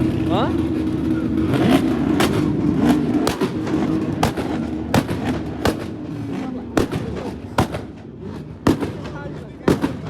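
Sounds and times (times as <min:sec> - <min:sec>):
loud sharp bangs: 0:02.1 - 0:10.0.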